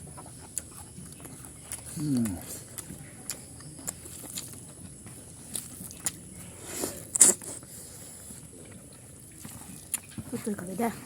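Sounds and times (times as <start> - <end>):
person chewing food: 0.0 - 10.7
mouth smacking: 0.5 - 4.6, 5.5 - 7.7.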